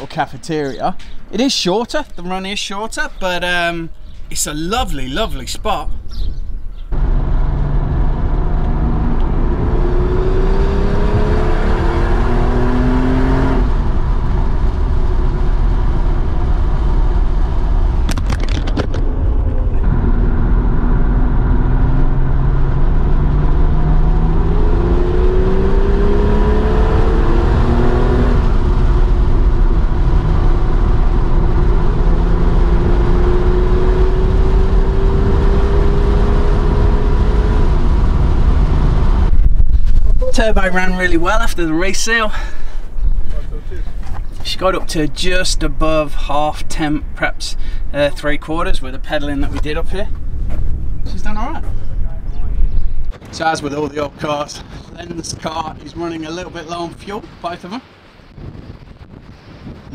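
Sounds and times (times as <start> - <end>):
car engine pulling hard: 6.9 - 39.4.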